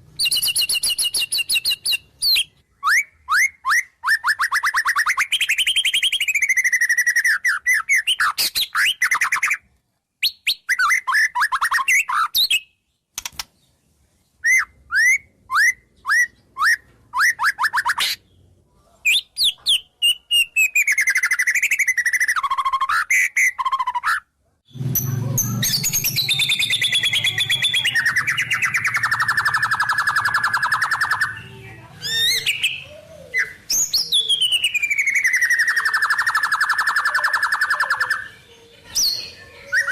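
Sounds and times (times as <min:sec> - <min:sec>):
bird singing whistled notes: 0:00.2 - 0:09.6, 0:14.4 - 0:18.0, 0:19.1 - 0:24.0, 0:24.7 - 0:38.4.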